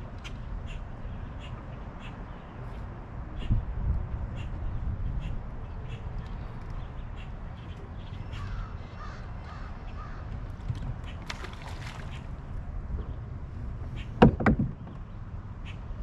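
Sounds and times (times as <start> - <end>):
distant bird cawing: 8.1 - 12.3.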